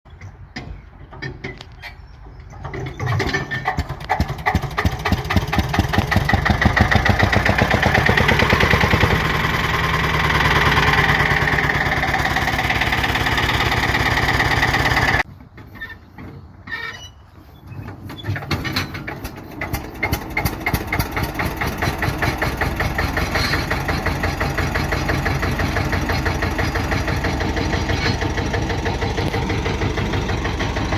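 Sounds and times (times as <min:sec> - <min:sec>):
single-cylinder diesel engine running: 0:02.6 - 0:15.3, 0:19.1 - 0:30.9.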